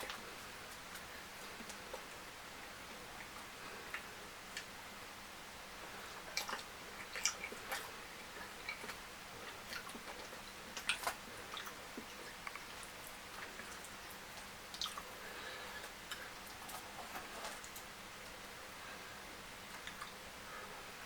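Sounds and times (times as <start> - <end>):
person chewing food: 5.8 - 18.5
wet mouth clicks and smacks: 6.3 - 7.9.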